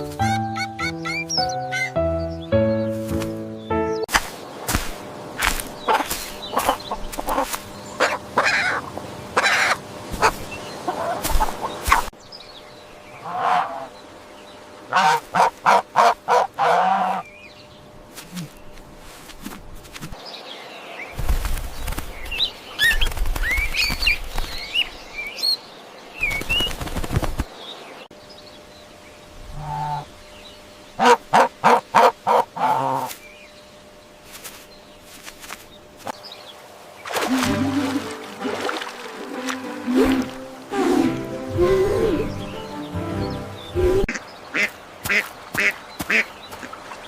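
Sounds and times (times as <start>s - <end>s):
poultry calling: 5.9s - 8.8s, 9.4s - 11.8s, 13.2s - 14.0s, 14.9s - 17.2s, 29.5s - 30.1s, 31.0s - 33.2s, 43.5s - 46.8s.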